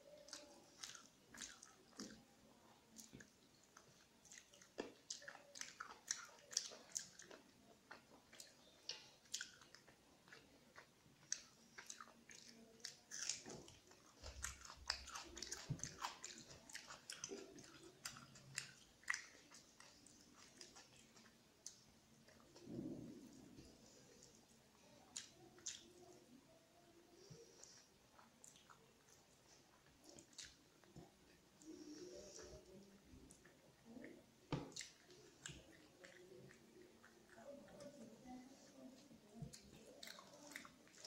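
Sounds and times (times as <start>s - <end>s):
person chewing food: 0.0s - 41.0s
wet mouth clicks: 30.0s - 37.9s.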